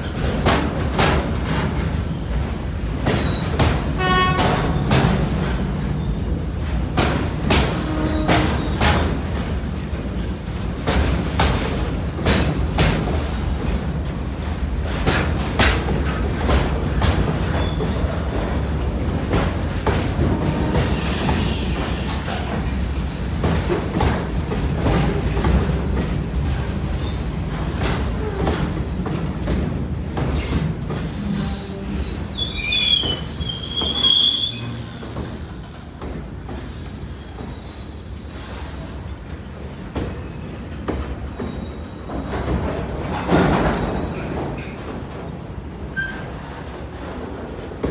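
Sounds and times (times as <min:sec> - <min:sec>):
freight train rumbling past: 0:00.0 - 0:47.9
high wheel squeal: 0:20.5 - 0:26.0, 0:26.8 - 0:38.4.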